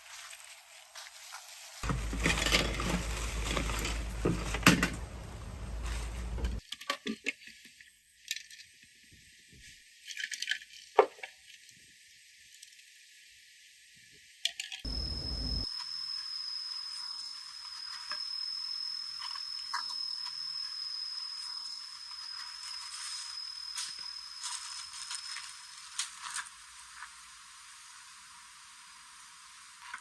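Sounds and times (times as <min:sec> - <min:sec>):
rumbling handling noise: 0:01.8 - 0:06.6, 0:14.9 - 0:15.7
small metal parts clinking: 0:01.8 - 0:06.6.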